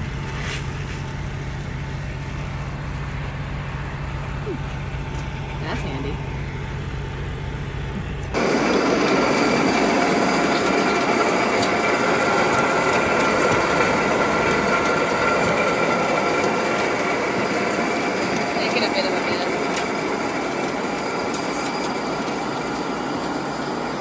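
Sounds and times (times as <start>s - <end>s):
engine idling: 0.0s - 24.0s
fertilizer pouring from truck: 8.4s - 23.3s.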